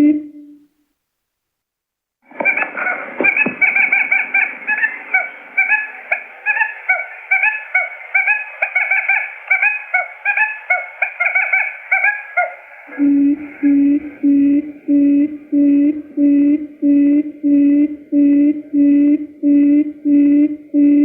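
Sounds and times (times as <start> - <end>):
low hooting notes: 2.3 - 21.0
quail lure chirps: 2.4 - 12.9.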